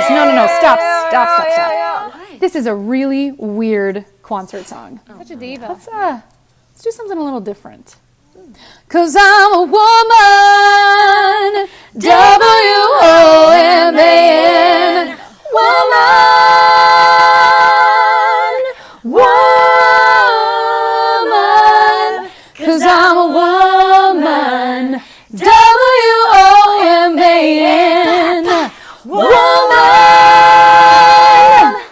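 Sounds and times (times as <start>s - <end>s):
women singing in harmony: 0.0s - 2.8s, 8.9s - 31.9s
singers breathing: 18.7s - 19.1s, 25.0s - 25.4s, 28.7s - 29.1s.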